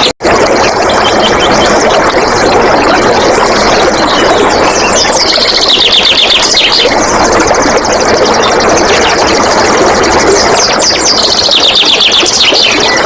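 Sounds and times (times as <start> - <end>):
flowing water: 0.0 - 13.0
birds chirping: 0.8 - 13.0
high rapid bird trill: 2.8 - 7.3.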